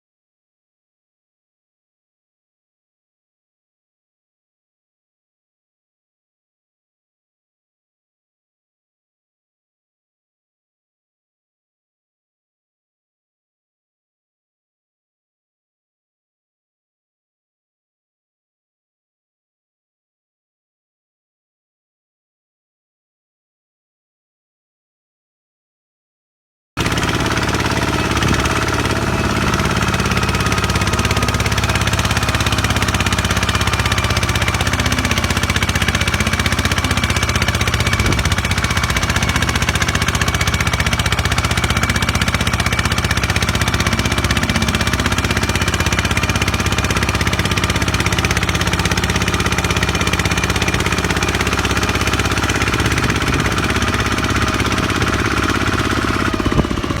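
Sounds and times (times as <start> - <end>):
tractor engine running: 26.8 - 57.0.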